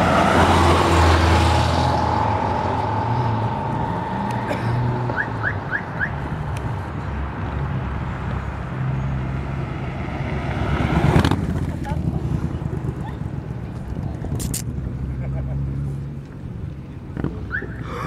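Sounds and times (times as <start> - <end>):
steady high tone: 0.0 - 6.5
outdoor roadside noise: 0.0 - 18.0
quick rising chirps: 0.4 - 6.2.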